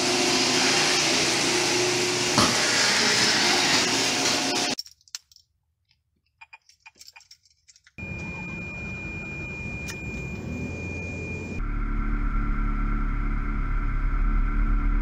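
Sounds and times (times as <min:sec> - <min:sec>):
keys rattling: 0:04.8 - 0:08.0
hum with high whine: 0:08.0 - 0:15.0.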